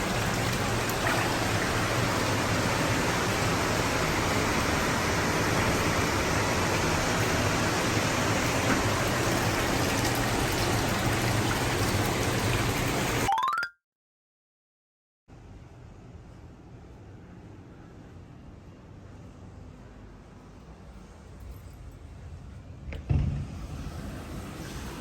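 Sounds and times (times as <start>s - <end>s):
water pouring into bathtub: 0.0s - 13.3s.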